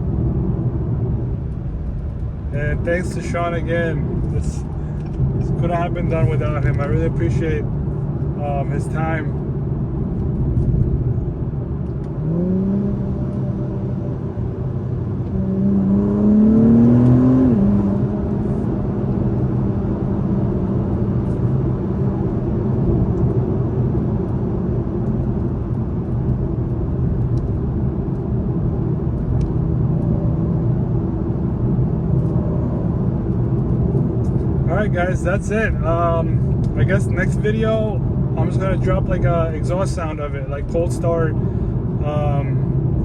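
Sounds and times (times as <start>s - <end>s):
low road rumble: 0.0s - 43.0s
car engine accelerating: 0.1s - 43.0s.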